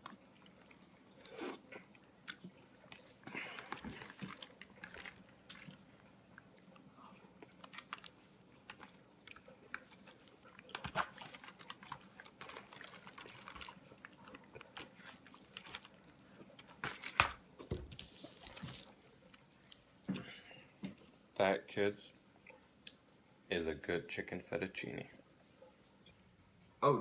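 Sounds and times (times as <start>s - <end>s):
person chewing: 0.0s - 16.8s.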